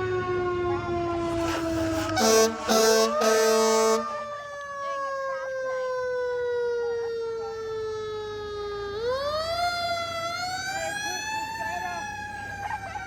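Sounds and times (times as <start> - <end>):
fire truck siren wailing: 0.0 - 13.0
loud steady horn blast: 1.2 - 5.0.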